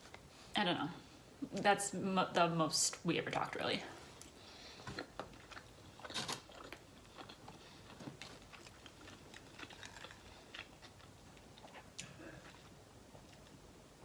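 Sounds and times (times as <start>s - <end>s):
person chewing food: 4.1s - 14.0s.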